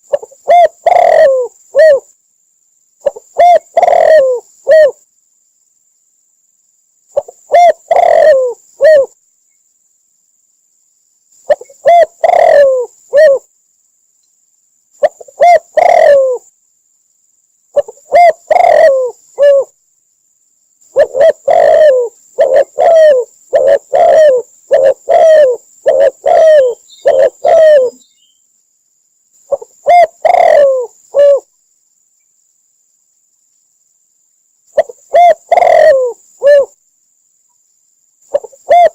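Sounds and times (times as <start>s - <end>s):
dove cooing: 0.0s - 2.1s, 3.0s - 5.0s, 7.1s - 9.2s, 11.5s - 13.5s, 15.0s - 16.5s, 17.7s - 19.8s, 20.9s - 28.1s, 29.5s - 31.5s, 34.7s - 36.8s, 38.3s - 38.9s.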